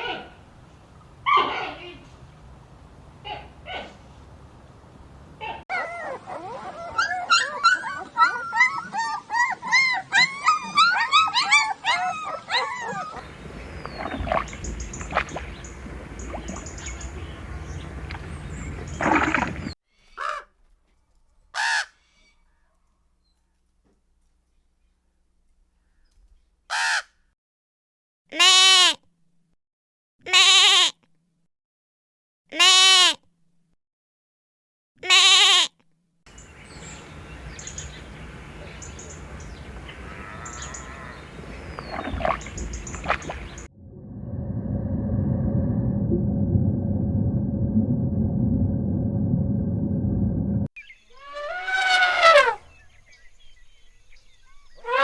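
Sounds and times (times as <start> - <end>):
sheep bleating: 40.1 - 41.2
canid yipping and whining: 51.1 - 52.8.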